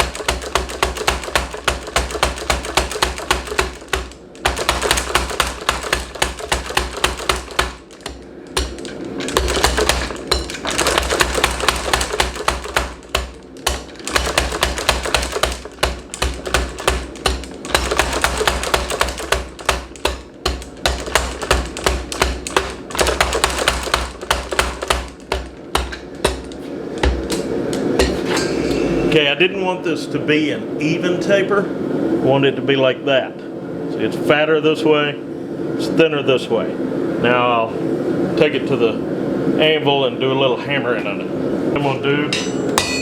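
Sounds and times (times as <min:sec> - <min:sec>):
power hammer striking hot steel: 0:00.0 - 0:29.2, 0:42.3 - 0:43.0.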